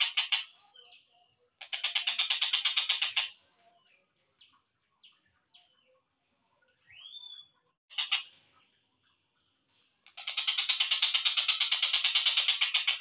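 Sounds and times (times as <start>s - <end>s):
kingfisher rattling call: 0.0s - 0.6s, 1.6s - 3.3s, 10.1s - 13.0s
faint bird chirps: 0.0s - 8.2s.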